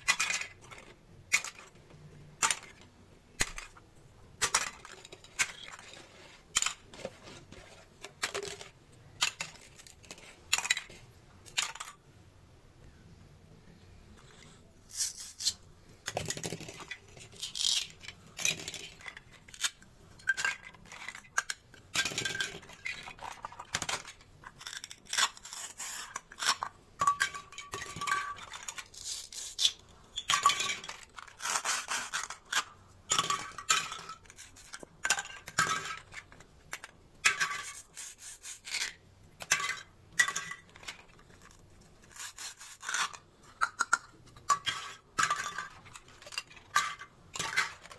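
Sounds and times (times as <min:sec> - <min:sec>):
plastic pieces clicking and clacking: 0:00.0 - 0:01.8, 0:02.4 - 0:03.8, 0:04.4 - 0:12.0, 0:15.0 - 0:37.9, 0:38.6 - 0:47.9.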